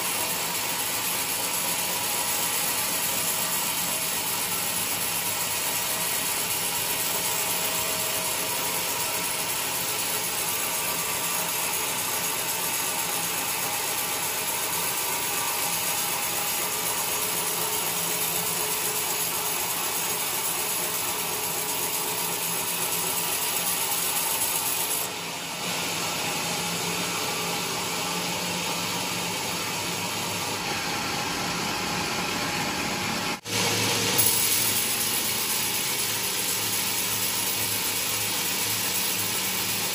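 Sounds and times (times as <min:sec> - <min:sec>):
sawmill cutting a log: 0:00.0 - 0:39.9.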